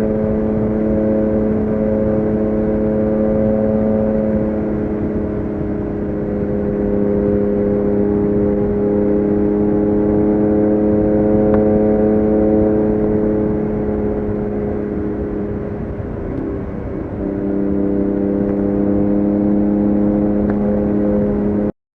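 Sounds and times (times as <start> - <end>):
motorcycle engine running: 0.0 - 21.7.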